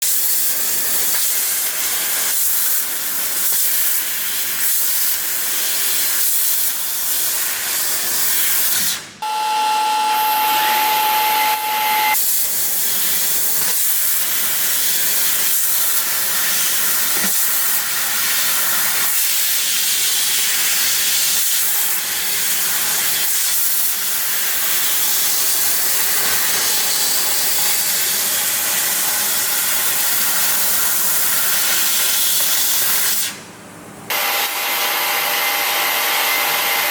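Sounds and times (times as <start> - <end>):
laser cutter hissing: 0.0 - 33.4
steady high tone: 9.2 - 12.2.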